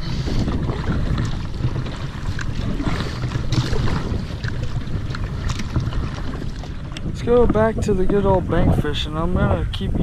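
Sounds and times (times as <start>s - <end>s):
kayak paddling: 0.0s - 10.0s
wind rumbling on microphone: 0.0s - 10.0s.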